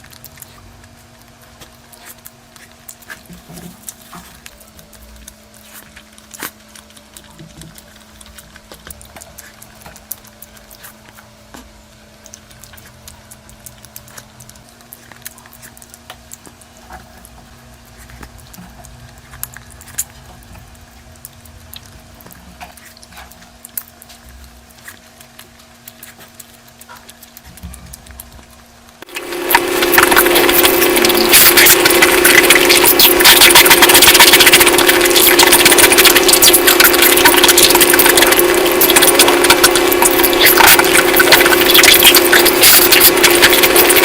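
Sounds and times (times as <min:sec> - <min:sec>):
faint steady hum: 0:00.0 - 0:44.0
person chewing and smacking: 0:00.0 - 0:44.0
small irregular clicks: 0:12.2 - 0:29.0.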